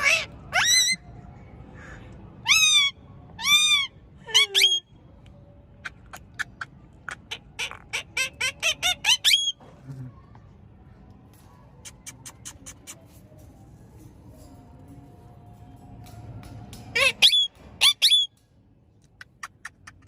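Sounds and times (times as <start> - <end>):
parakeet squawking: 0.0 - 1.0, 5.9 - 9.6, 17.0 - 18.3
parakeet clicks and chirps: 11.8 - 13.2, 19.0 - 20.0.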